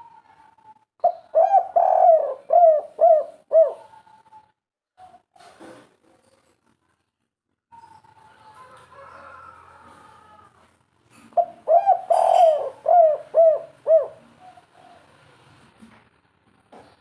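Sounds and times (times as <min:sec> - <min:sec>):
dove cooing: 0:01.0 - 0:04.4, 0:11.2 - 0:15.4.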